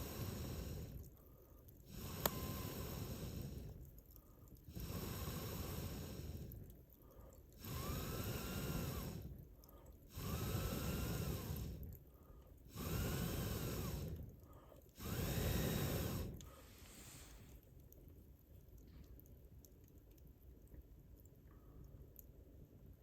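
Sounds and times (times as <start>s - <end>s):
air blown at campfire: 0.0s - 1.1s, 1.9s - 3.8s, 4.7s - 6.7s, 7.6s - 9.4s, 10.1s - 12.0s, 12.7s - 14.4s, 15.0s - 17.6s.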